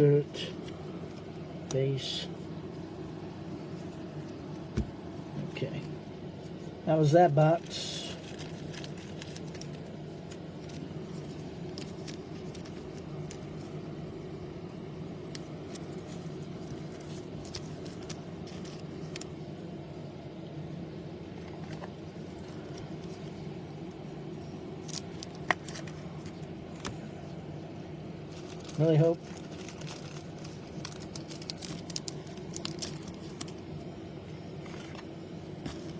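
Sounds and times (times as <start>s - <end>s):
steady low hum: 0.0s - 35.9s
trading cards and packaging clicking: 8.0s - 13.8s, 15.2s - 19.4s, 24.8s - 27.0s, 28.3s - 33.6s.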